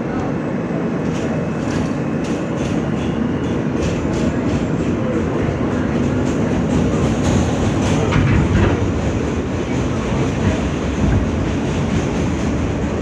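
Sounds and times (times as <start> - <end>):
subway wheels rumbling on rails: 0.0 - 13.0.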